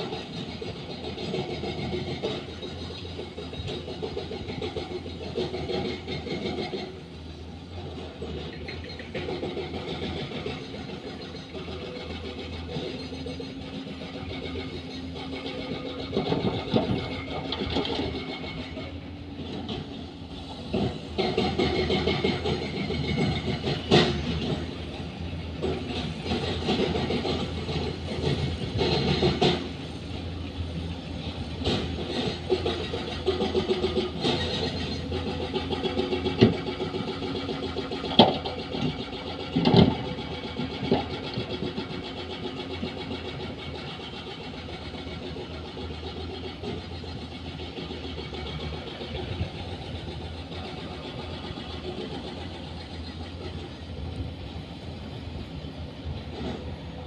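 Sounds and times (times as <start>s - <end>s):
diesel machinery engine drone: 0.0s - 57.0s
metallic clanks and knocks: 20.7s - 25.0s, 25.6s - 29.8s, 31.6s - 44.0s.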